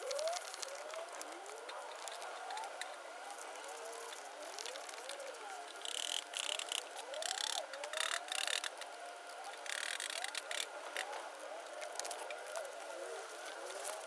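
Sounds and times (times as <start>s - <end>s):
metal tool clicking and rattling: 5.8s - 8.9s, 9.6s - 11.1s.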